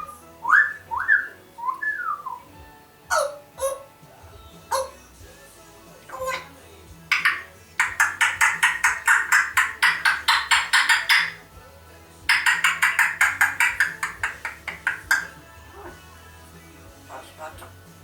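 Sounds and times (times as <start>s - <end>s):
parrot clicking chirps: 7.1s - 11.4s, 12.3s - 15.4s.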